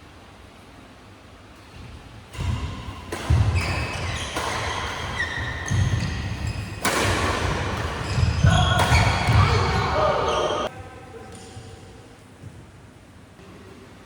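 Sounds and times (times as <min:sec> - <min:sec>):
shoes squeaking on court floor: 0:01.7 - 0:10.7
racket hitting shuttlecock: 0:02.3 - 0:10.7.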